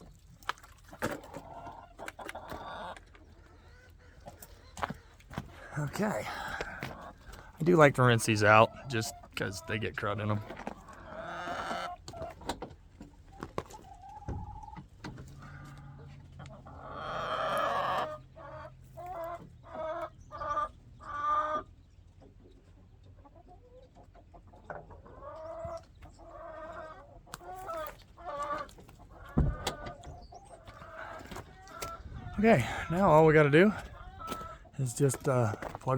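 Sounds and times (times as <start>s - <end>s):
chickens clucking: 0.0s - 35.9s
thump: 29.4s - 29.8s.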